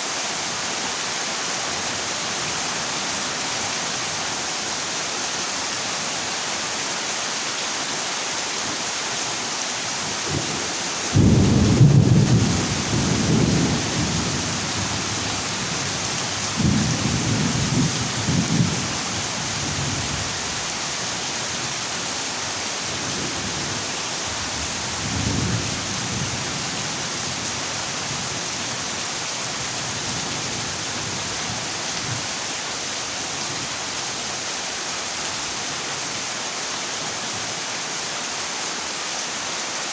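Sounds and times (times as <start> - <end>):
heavy rain on metal roof: 0.0 - 39.9
thunder rumbling: 10.3 - 15.7.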